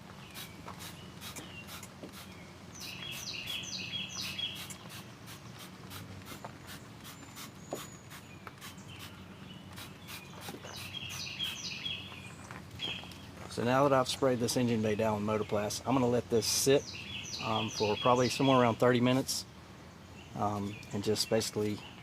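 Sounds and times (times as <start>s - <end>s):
birds chirping: 0.0s - 22.0s
spray bottle squirting: 0.3s - 3.6s, 4.2s - 11.6s.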